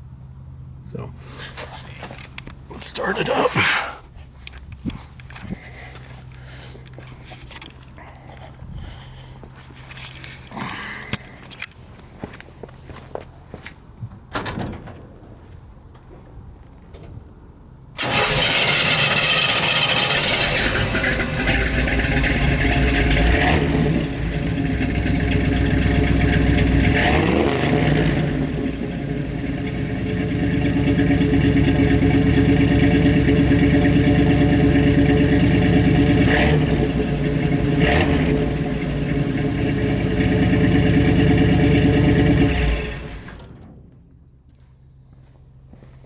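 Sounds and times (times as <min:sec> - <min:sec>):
pickup truck engine idling and revving: 0:17.3 - 0:43.5.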